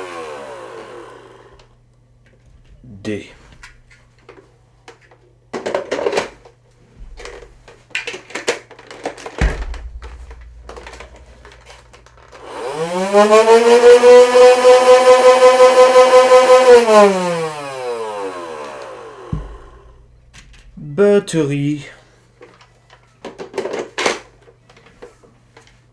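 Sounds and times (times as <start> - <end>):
rapid pulsing of blaster firing: 9.4 - 14.1
toy blaster motor whine: 13.0 - 19.2.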